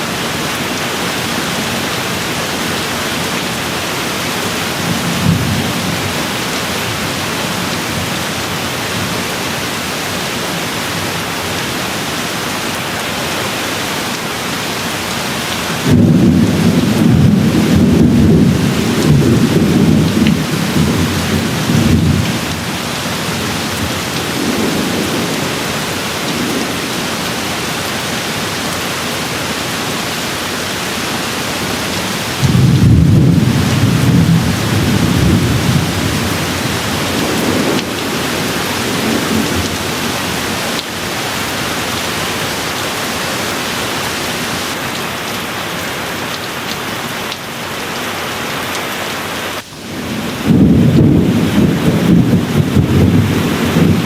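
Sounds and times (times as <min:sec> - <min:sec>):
heavy rain: 0:00.0 - 0:54.0
rolling thunder: 0:15.8 - 0:29.8, 0:30.6 - 0:40.6, 0:49.8 - 0:54.0.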